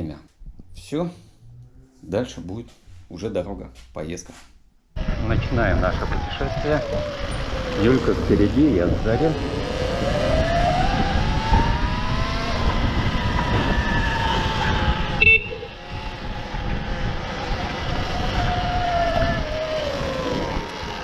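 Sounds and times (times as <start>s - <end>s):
wind: 0.0s - 21.0s
electric motorbike motor whining: 5.0s - 21.0s.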